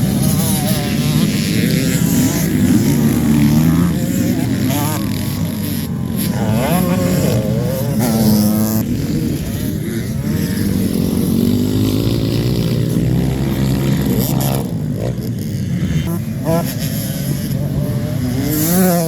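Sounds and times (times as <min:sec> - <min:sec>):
motocross bike engines revving: 0:00.0 - 0:19.0.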